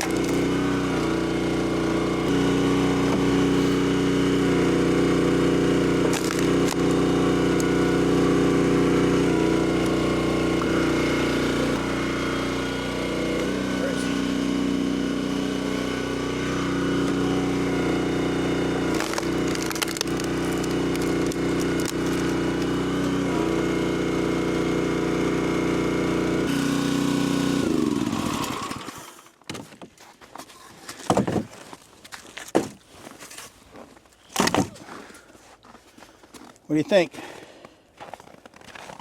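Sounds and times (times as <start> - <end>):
wood cracking and splintering: 0.0 - 0.6, 6.0 - 8.3, 16.4 - 23.1, 27.7 - 34.9
small petrol engine running: 0.0 - 29.4.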